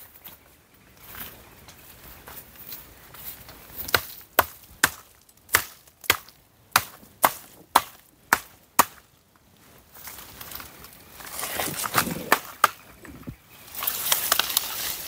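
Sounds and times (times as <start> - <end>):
wood being chopped: 3.8 - 9.1, 11.7 - 12.9.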